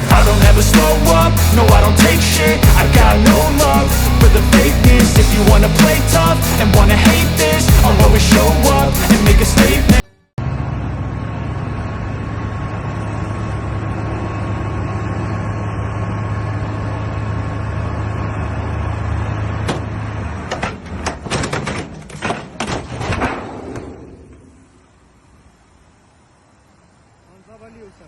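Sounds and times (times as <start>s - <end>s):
vehicle engine running: 0.0s - 20.5s
sharp knocks and clatter: 19.6s - 24.4s.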